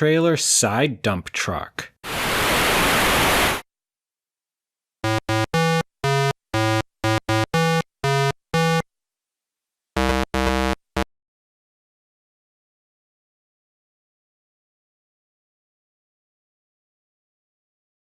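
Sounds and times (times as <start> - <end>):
electronic synthesizer tune: 5.0 - 8.8, 10.0 - 11.1.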